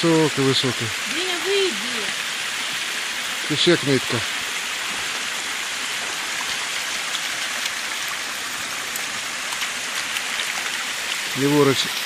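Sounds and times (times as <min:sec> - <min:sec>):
waterfall splashing: 0:00.0 - 0:12.0.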